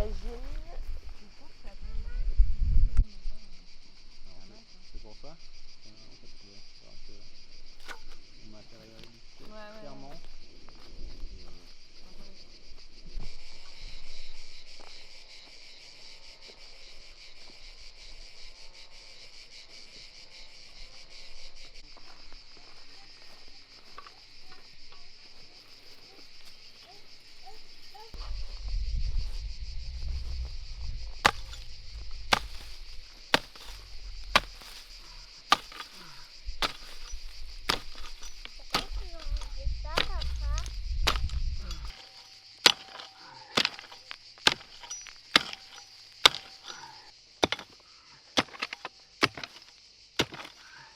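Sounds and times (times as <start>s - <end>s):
insects chirring: 0.0s - 50.9s
low rumble: 28.2s - 35.4s, 38.4s - 41.9s
sharp knocks: 31.2s - 47.8s.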